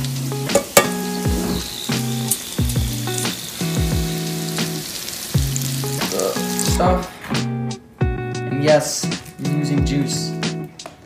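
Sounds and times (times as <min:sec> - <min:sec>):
background music with bass and kick drums: 0:00.0 - 0:04.8, 0:05.4 - 0:11.0
food sizzling in hot oil: 0:00.0 - 0:07.5.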